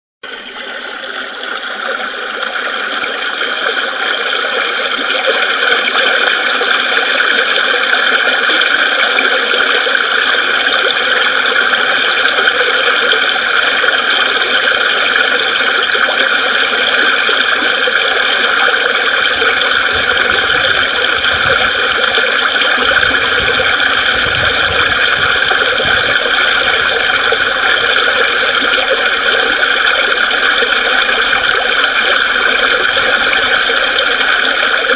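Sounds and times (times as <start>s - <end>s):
creek water flowing: 10.0s - 34.9s.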